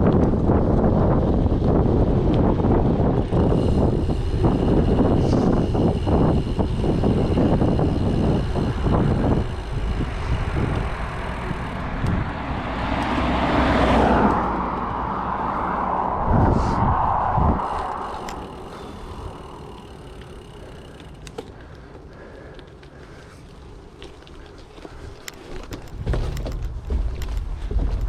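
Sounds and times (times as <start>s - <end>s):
wind buffeting microphone: 0.0s - 21.8s, 24.8s - 28.0s
car passing by: 10.0s - 20.5s.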